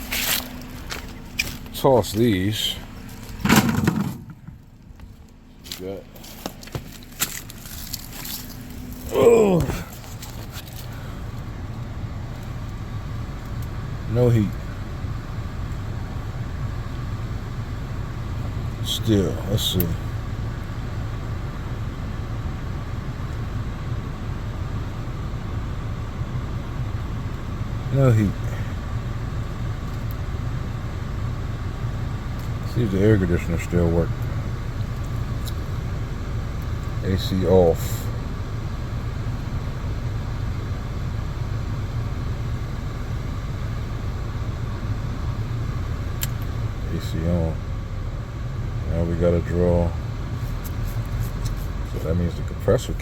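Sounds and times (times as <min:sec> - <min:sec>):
car engine idling: 0:00.0 - 0:53.0
heater blower fan: 0:00.0 - 0:53.0.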